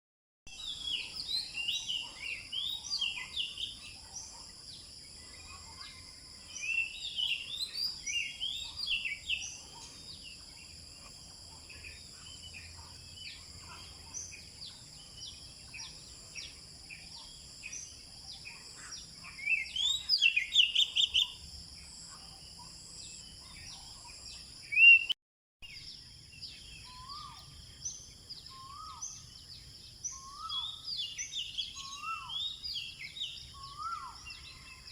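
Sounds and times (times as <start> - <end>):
wild birds singing: 0.5 - 34.9.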